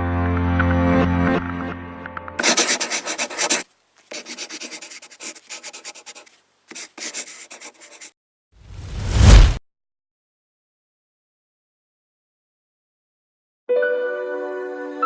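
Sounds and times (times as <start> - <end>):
scratchy rubbing strokes: 2.4 - 8.2.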